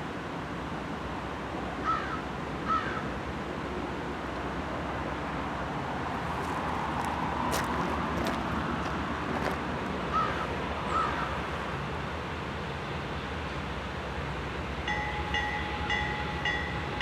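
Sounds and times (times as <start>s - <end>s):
freight train rumbling hiss: 0.0s - 17.0s
crow cawing: 1.8s - 3.0s, 10.1s - 11.3s.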